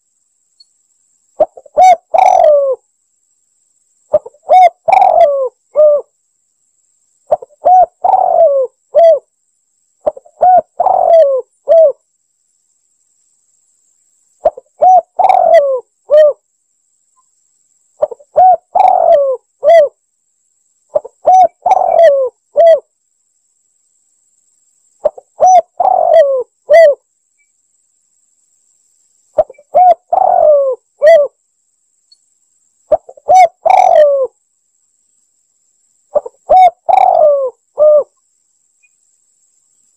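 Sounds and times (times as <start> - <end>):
dove cooing: 1.4 - 2.8, 4.1 - 6.1, 7.3 - 9.3, 10.0 - 12.0, 14.4 - 16.4, 18.0 - 19.9, 20.9 - 22.9, 25.0 - 27.0, 29.4 - 31.4, 32.9 - 34.3, 36.1 - 38.2.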